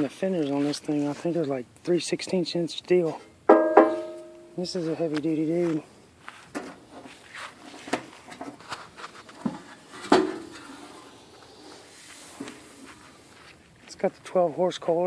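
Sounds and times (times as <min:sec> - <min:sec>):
loud ringing metallic knock: 0:03.5 - 0:04.6.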